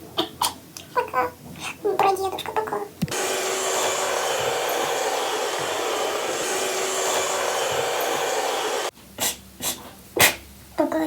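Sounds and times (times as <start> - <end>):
appliance motor and fan whooshing: 3.1 - 8.9
appliance switching off: 3.1 - 8.9.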